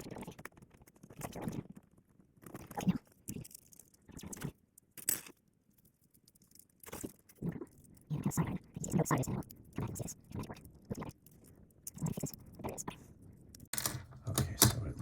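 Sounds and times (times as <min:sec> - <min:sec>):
small plastic parts clicking: 0:02.4 - 0:08.1.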